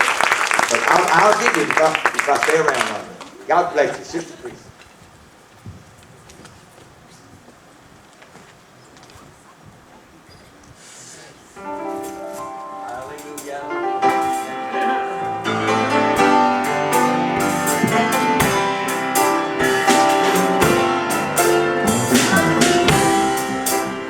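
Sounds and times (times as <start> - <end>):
piano chords: 11.6 - 24.0
drums: 15.5 - 24.0.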